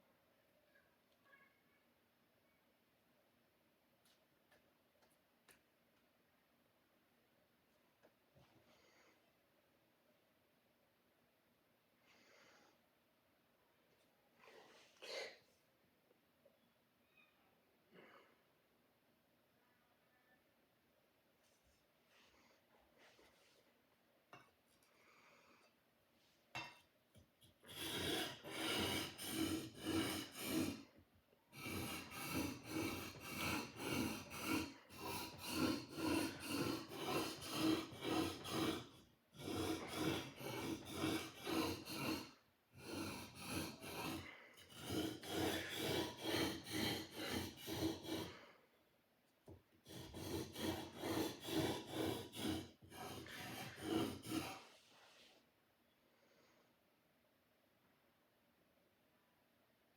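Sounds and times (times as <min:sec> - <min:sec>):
blade rasping on sharpener: 0:27.7 - 0:30.8, 0:31.6 - 0:48.3, 0:49.9 - 0:54.6.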